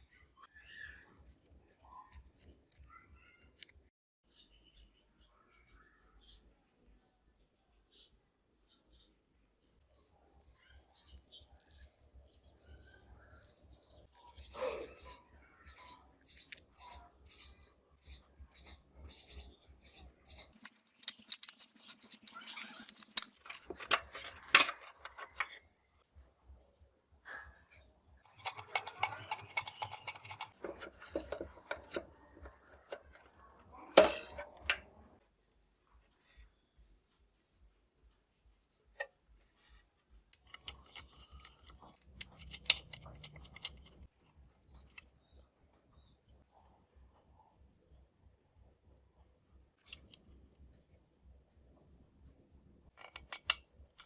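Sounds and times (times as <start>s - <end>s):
small hard parts clicking and tapping: 18.5s - 25.6s, 28.2s - 35.0s, 40.1s - 45.4s, 52.3s - 54.0s.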